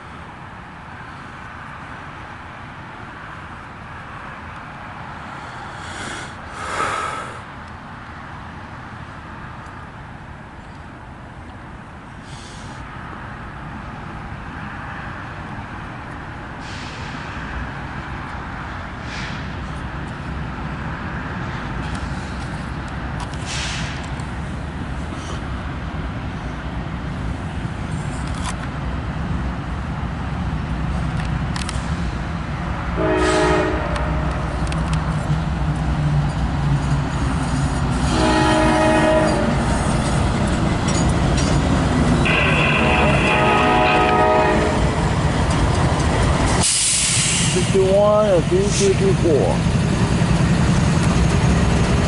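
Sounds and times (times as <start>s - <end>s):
diesel locomotives rumbling: 0.0s - 52.0s
locomotive air horn: 33.0s - 34.4s, 38.0s - 39.6s, 42.2s - 45.0s.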